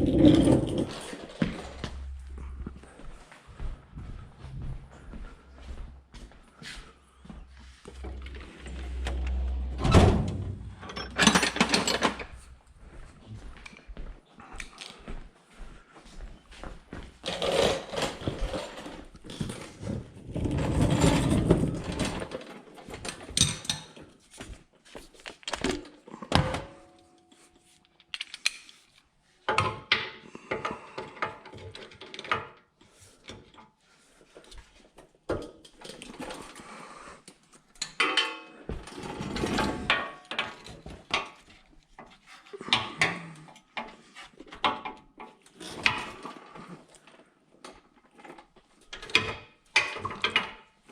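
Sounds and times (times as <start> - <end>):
tools and metal parts clanking: 0.0 - 2.4, 7.8 - 12.6, 17.2 - 24.1, 25.3 - 32.6, 37.8 - 47.2, 48.0 - 50.9.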